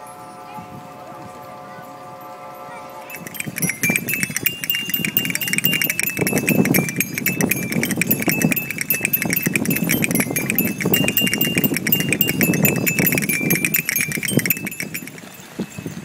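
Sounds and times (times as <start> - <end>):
rattling flutter: 3.1 - 15.5
strong wind: 3.2 - 16.0.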